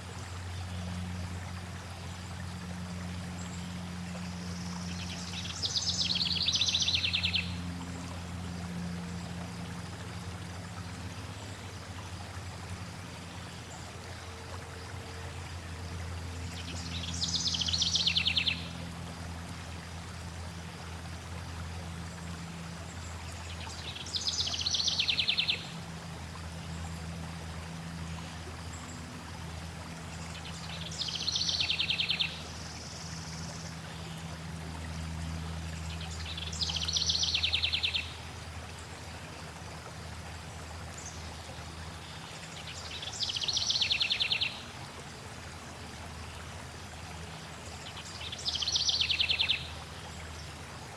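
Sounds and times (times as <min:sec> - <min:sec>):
flowing water rushing: 0:00.0 - 0:50.9.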